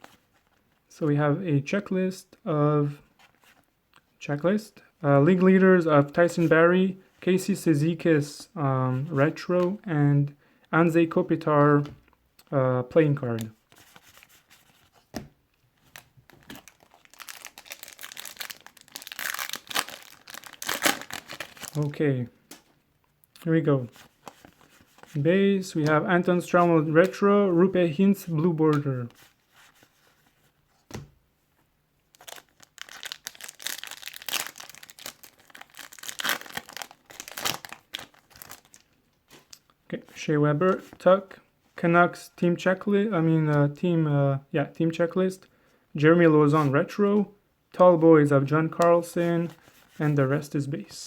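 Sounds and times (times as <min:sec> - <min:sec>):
wrapper crinkling and tearing: 0:15.8 - 0:22.0, 0:32.1 - 0:39.6.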